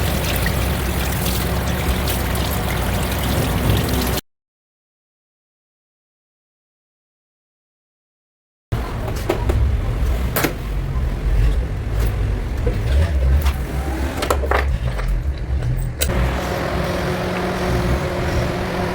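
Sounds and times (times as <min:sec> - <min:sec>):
car engine running: 0:08.8 - 0:18.9.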